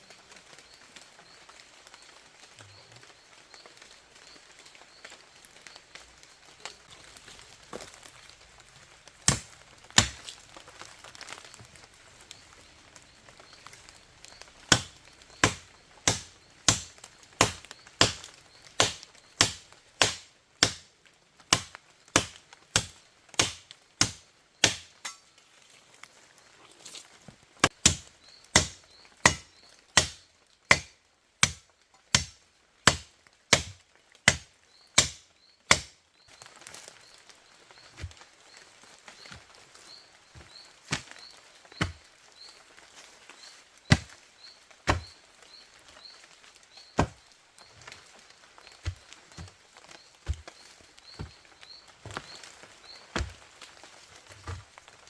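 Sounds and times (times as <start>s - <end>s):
blade chopping wood: 9.2s - 10.4s, 14.7s - 20.9s, 21.5s - 25.2s, 27.6s - 36.0s, 40.9s - 41.2s, 41.8s - 42.0s, 43.9s - 44.2s, 44.9s - 45.2s, 47.0s - 47.2s, 50.2s - 50.6s, 53.1s - 53.4s.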